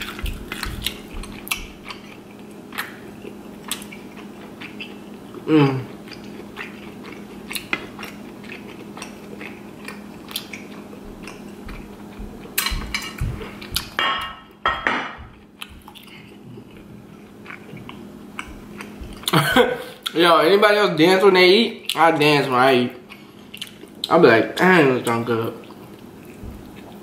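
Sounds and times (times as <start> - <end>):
chewing with wet clicks: 0.0 - 14.0, 15.3 - 19.4, 21.8 - 22.0, 23.0 - 24.2, 25.0 - 27.0.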